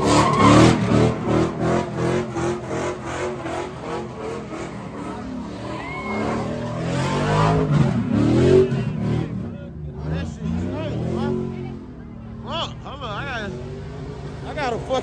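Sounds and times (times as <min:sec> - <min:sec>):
car engine revving hard: 0:00.0 - 0:11.8
tyres skidding: 0:00.0 - 0:15.0.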